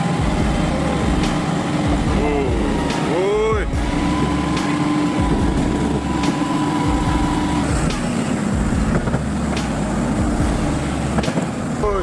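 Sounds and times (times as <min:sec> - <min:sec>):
diesel engine drone: 0:00.0 - 0:12.0
engine whine: 0:00.0 - 0:12.0.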